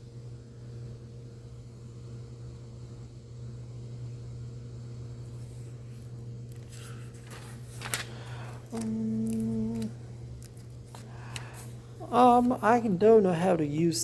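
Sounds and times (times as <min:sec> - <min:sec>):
steady pitched hum: 0:00.0 - 0:14.0
paper pages rustling and turning: 0:05.9 - 0:12.6.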